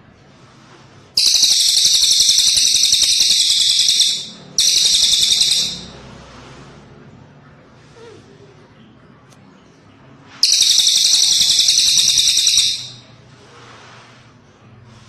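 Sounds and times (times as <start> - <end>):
bird singing trilled phrases: 1.2 - 5.9, 10.4 - 13.0.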